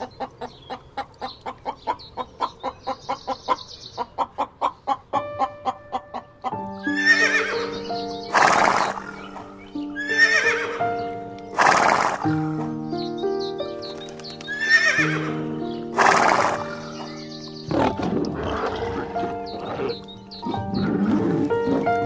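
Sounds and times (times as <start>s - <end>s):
background music: 5.0s - 22.0s
horse whinnying: 6.8s - 7.7s, 8.3s - 9.4s, 10.0s - 10.8s, 11.5s - 12.4s, 14.5s - 15.4s, 16.0s - 17.1s, 17.7s - 22.0s.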